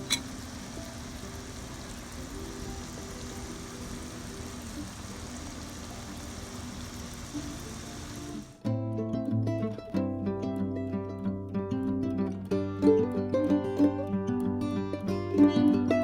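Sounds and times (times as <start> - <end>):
food sizzling in a pan: 0.0 - 8.6
soft background music: 0.1 - 16.0.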